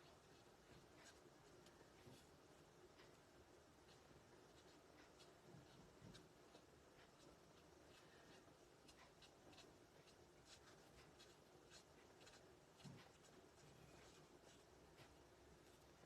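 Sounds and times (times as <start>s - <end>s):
marker scratching on cardstock: 3.9s - 15.1s.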